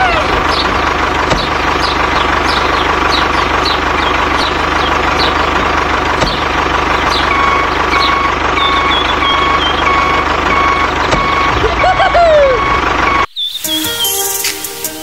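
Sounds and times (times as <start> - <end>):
vehicle engine running: 0.0 - 13.3
reversing beeper: 7.2 - 13.4.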